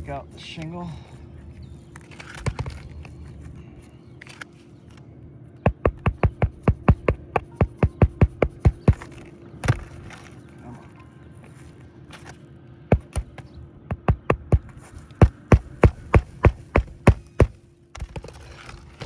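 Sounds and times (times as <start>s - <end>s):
hammer tapping nail: 5.7s - 9.0s, 12.9s - 17.6s.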